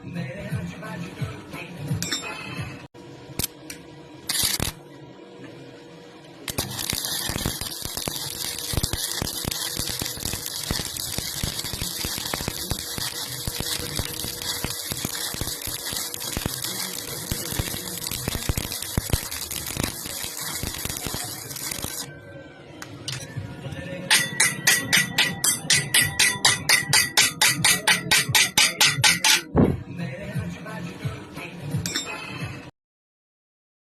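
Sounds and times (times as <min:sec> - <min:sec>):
welding arc crackling: 0:04.3 - 0:04.8, 0:06.4 - 0:22.1, 0:24.1 - 0:29.4
sharp metallic strikes: 0:24.1 - 0:29.7.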